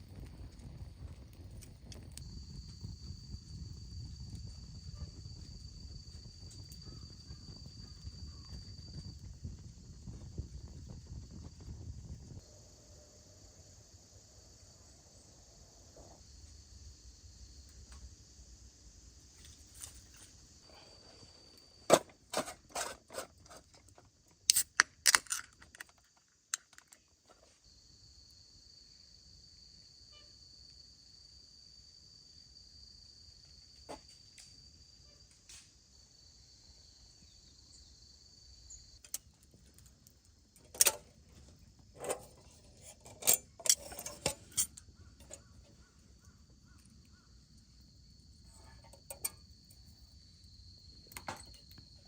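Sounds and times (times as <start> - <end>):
insects trilling: 2.2 - 52.0
sharp clinks and knocks: 42.0 - 45.5.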